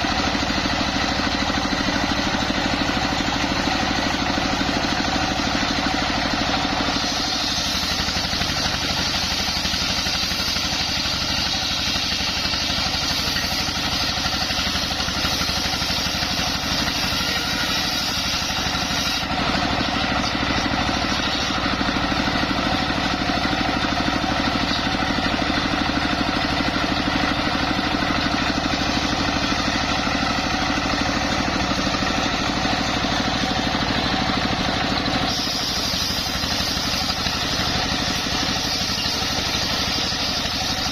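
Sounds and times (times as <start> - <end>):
engine drone: 0.0 - 40.9
circular saw hiss: 35.3 - 40.7.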